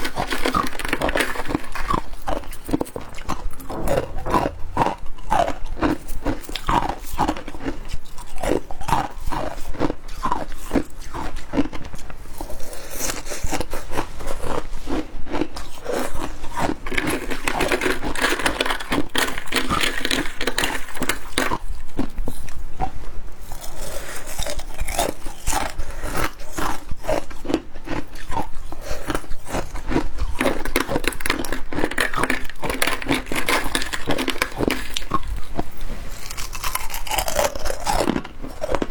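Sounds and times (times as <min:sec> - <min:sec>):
chewing crunchy ice: 0:00.0 - 0:38.9.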